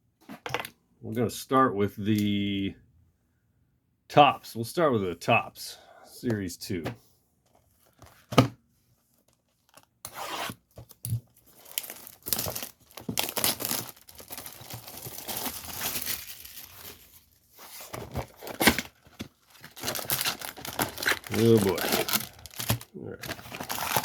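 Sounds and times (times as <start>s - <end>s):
plastic wrapping tearing and crinkling: 9.2s - 24.0s.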